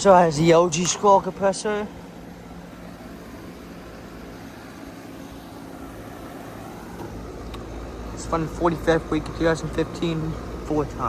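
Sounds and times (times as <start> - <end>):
condenser fan whoosh: 0.0 - 11.0.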